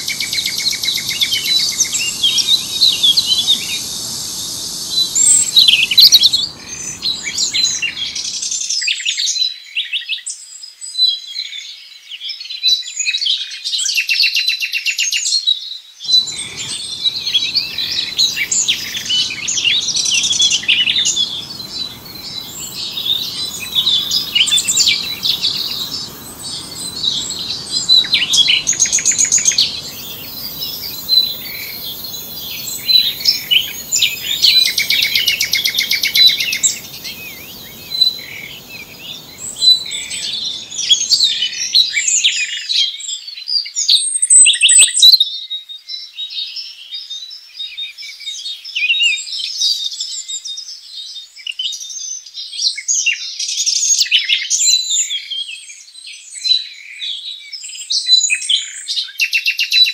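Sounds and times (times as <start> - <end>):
songbirds chirping and singing: 0.0 - 8.3, 16.1 - 42.1.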